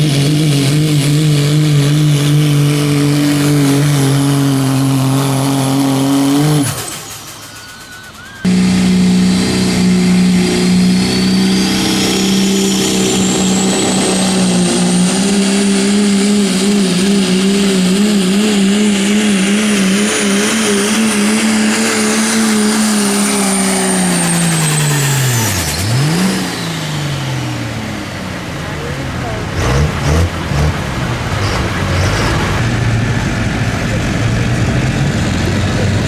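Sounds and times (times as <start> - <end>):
truck engine at high revs: 0.0 - 36.0
high whine: 6.8 - 25.9.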